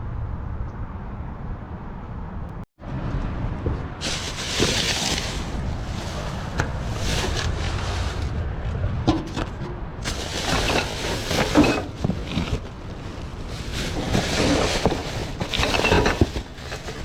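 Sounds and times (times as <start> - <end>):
wind buffeting microphone: 2.8 - 15.5
rustling hiss: 4.0 - 8.4, 10.0 - 17.0.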